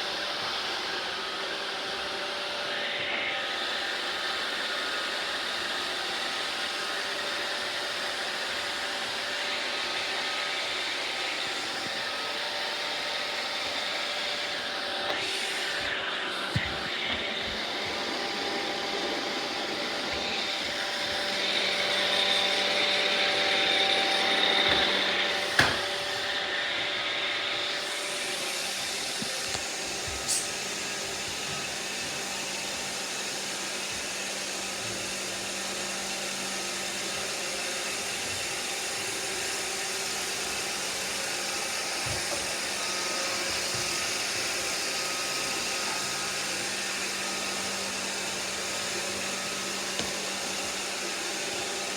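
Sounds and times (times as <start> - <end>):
robot vacuums whirring: 0.0 - 51.9.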